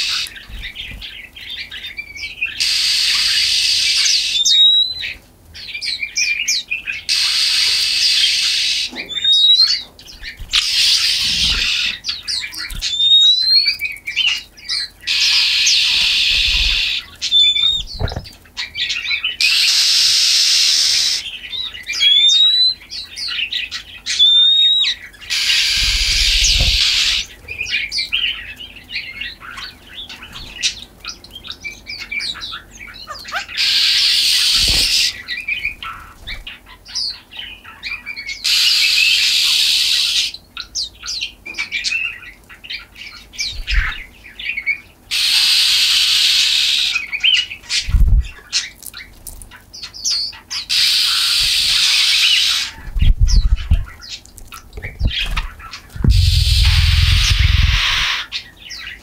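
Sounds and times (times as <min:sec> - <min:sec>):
songbirds raspy chatter: 0:00.0 - 0:59.0
rising whistled bird notes: 0:02.6 - 0:05.1, 0:12.6 - 0:13.8, 0:15.1 - 0:18.2, 0:24.1 - 0:27.4, 0:56.0 - 0:58.3
soft low thumps: 0:17.8 - 0:18.4, 0:54.8 - 0:58.0
quick bird chirps: 0:55.0 - 0:58.2.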